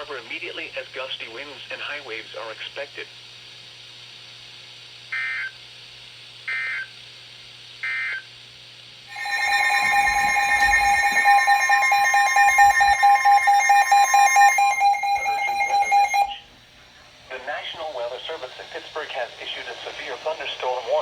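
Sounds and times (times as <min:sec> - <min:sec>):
digital data tone bursts: 0:09.1 - 0:16.4
steady alert tone: 0:09.1 - 0:16.4.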